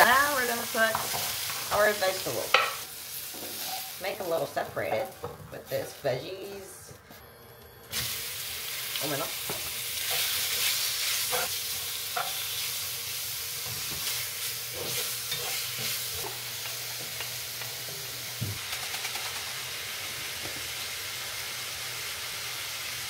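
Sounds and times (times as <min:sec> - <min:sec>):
meat sizzling in frying pan: 0:00.0 - 0:04.6, 0:07.9 - 0:23.0
utensils scraping pan: 0:14.0 - 0:16.4.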